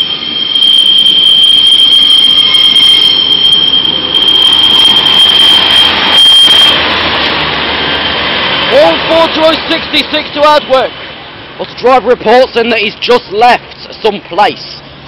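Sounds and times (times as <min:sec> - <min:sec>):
train wheel flange squeal: 0:00.0 - 0:11.1
train rumbling past: 0:00.0 - 0:15.0.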